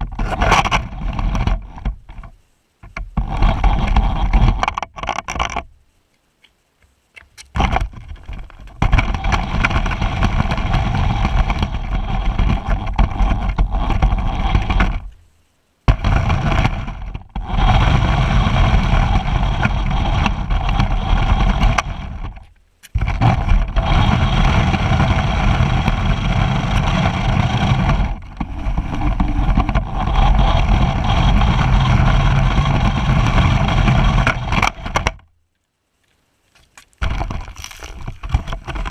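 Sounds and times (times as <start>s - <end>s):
wind noise: 7.2s - 15.2s, 15.8s - 35.2s.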